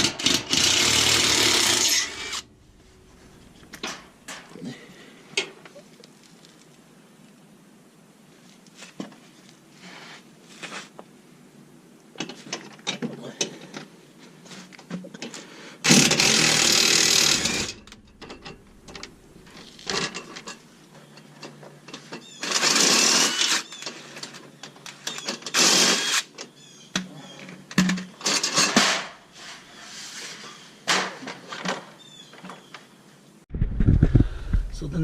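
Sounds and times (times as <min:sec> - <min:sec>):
power tool running in spurts: 0:00.0 - 0:02.5, 0:15.9 - 0:19.1
bolts clinking and knocking: 0:15.9 - 0:22.3.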